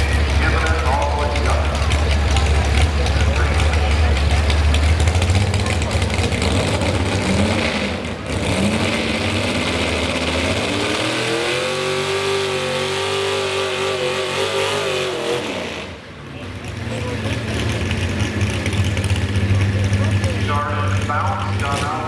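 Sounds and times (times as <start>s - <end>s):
truck engine revving: 0.0s - 22.0s.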